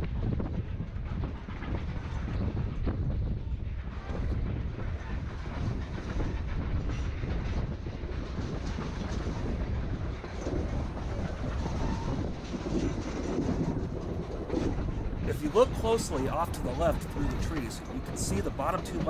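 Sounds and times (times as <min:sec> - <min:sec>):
train rumbling over rails: 0:15.0 - 0:19.0.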